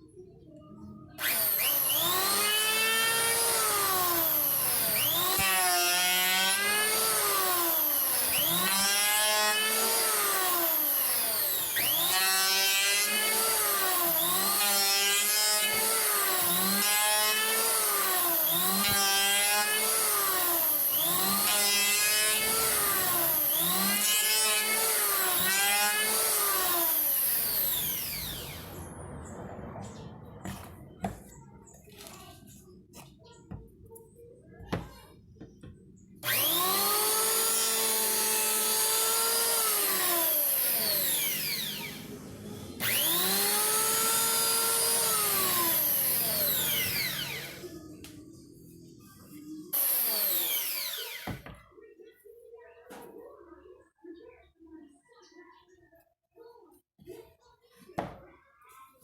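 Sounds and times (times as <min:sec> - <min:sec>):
electric hand planer on wood: 0:01.2 - 0:28.7, 0:36.2 - 0:48.2, 0:49.7 - 0:51.5.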